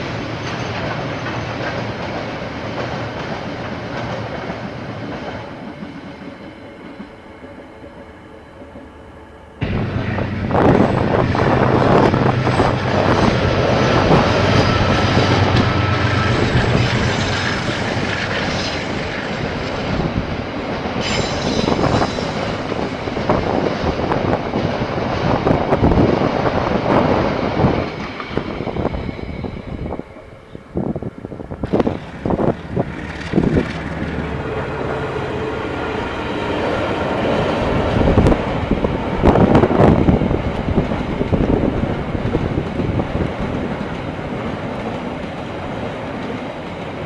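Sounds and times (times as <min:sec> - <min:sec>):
train wheels squealing: 0:00.0 - 0:03.2, 0:04.6 - 0:46.6
diesel locomotive engine: 0:00.0 - 0:47.0
train wheels clattering over rail joints: 0:09.6 - 0:47.0.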